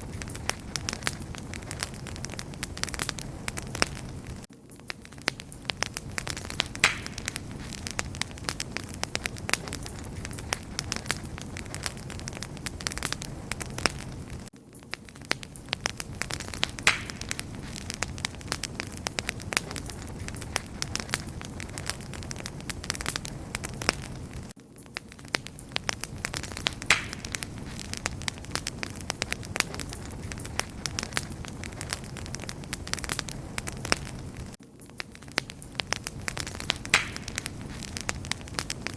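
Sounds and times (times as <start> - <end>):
low rumble of flames: 0.0 - 38.9
wood fire crackling: 0.0 - 38.9.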